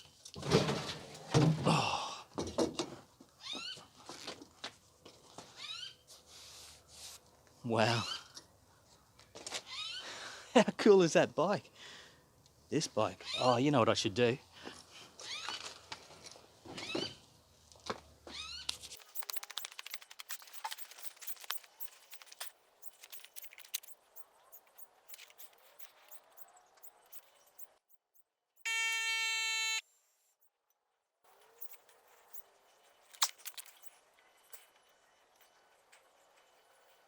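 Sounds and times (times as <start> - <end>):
quick irregular clicking: 19.0 - 28.0
steady buzzing beep: 28.6 - 29.8.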